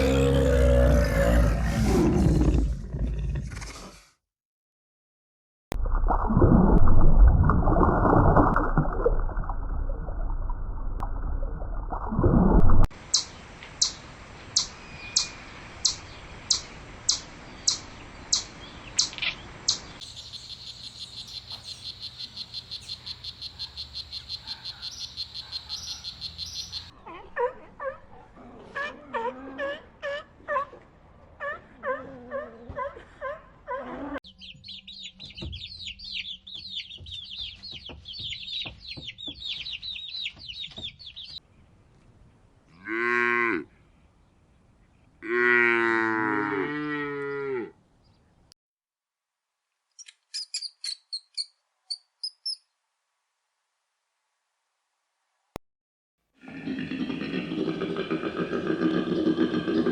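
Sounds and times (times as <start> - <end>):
high twittering birdsong: 13.1 - 27.1, 34.2 - 41.8, 50.0 - 52.8
cow mooing: 42.8 - 43.7, 45.2 - 47.8.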